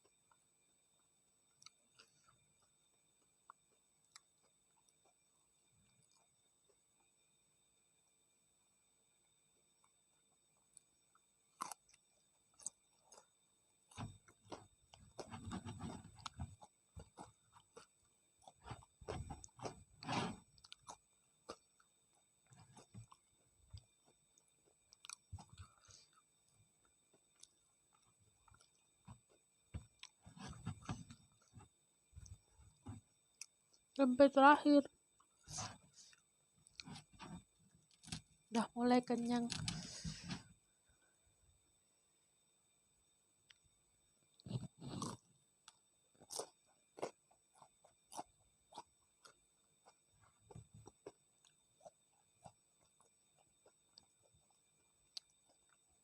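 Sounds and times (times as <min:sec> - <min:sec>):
chewing and wet mouth sounds: 0:10.8 - 0:19.8, 0:20.5 - 0:30.3, 0:44.4 - 0:55.8
biting fried food: 0:11.5 - 0:13.3, 0:44.4 - 0:50.0.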